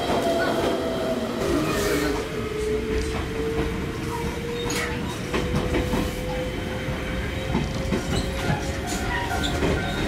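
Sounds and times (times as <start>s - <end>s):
train wheels rumbling: 0.0s - 10.0s.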